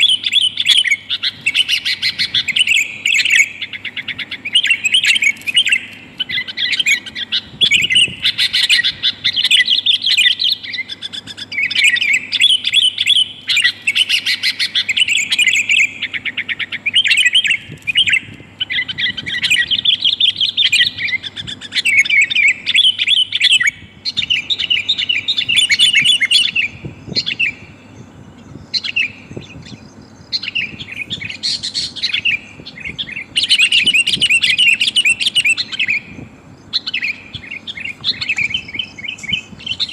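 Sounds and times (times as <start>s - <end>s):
bulbul chattering: 0.0s - 39.9s.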